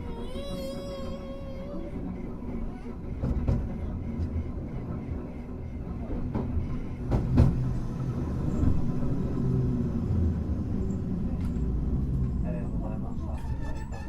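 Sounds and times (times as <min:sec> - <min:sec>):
tram motors and wheels rumbling: 0:00.0 - 0:14.0.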